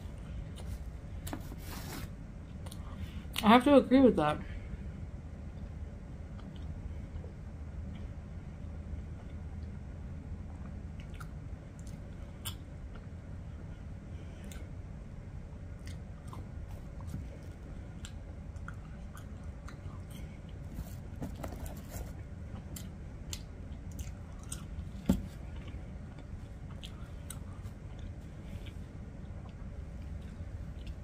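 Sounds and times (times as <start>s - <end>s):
steady low hum: 0.0s - 31.0s
chewing french fries: 10.4s - 13.2s, 15.6s - 20.7s, 22.5s - 31.0s.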